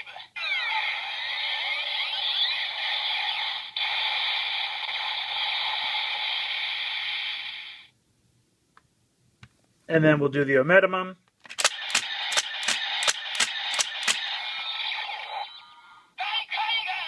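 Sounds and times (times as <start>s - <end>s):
toy electronic sound effect: 0.0s - 7.7s, 11.6s - 17.0s.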